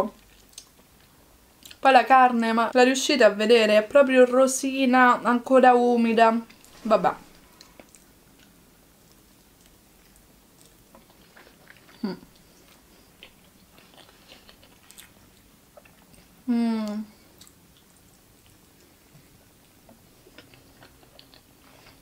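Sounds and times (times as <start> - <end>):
chewing and biting burger: 7.6 - 16.1.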